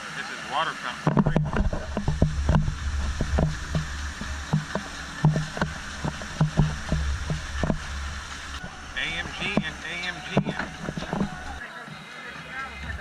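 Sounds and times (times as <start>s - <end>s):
water fountain splashing: 0.0s - 11.6s
low rumble: 1.2s - 11.6s
short low thuds: 1.2s - 11.6s.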